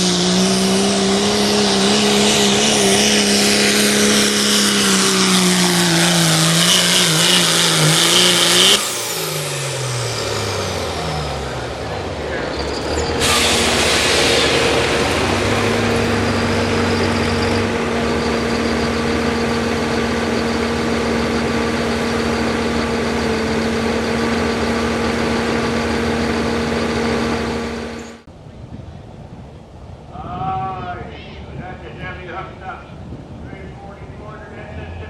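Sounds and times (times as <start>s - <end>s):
engine running flat out: 0.0s - 28.3s, 30.6s - 35.0s
rush of exhaust noise: 0.0s - 35.0s.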